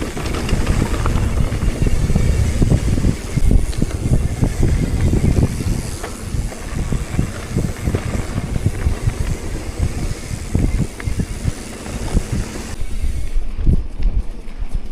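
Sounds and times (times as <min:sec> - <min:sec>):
wind buffeting microphone: 0:00.0 - 0:14.9.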